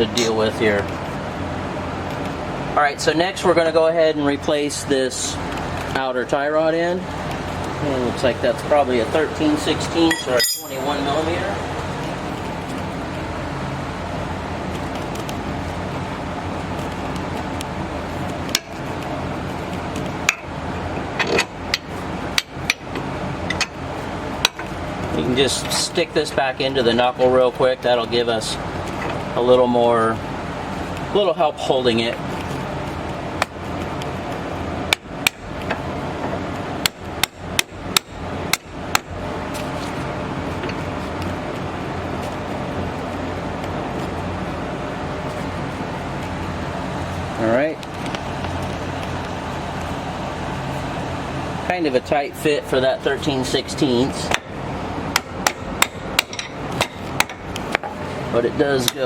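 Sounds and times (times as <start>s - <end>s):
steady background hum: 0.0s - 59.0s
hammer striking metal: 10.1s - 11.2s.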